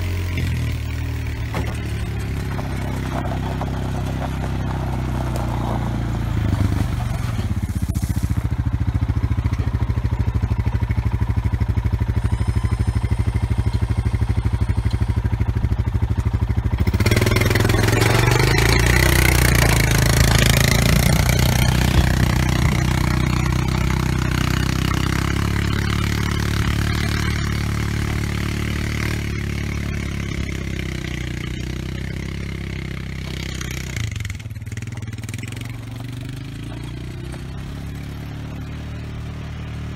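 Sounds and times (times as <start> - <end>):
land planer scraping dirt: 0.0 - 39.9
off-road vehicle engine running: 0.0 - 39.9.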